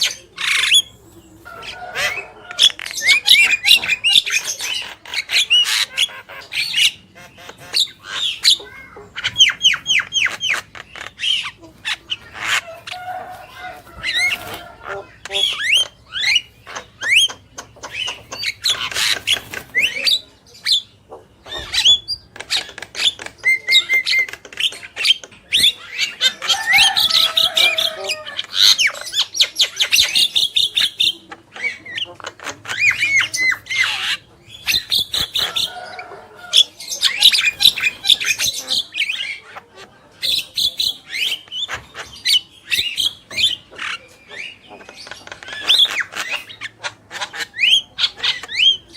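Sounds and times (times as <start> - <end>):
mynas chattering and singing: 0.0 - 48.9.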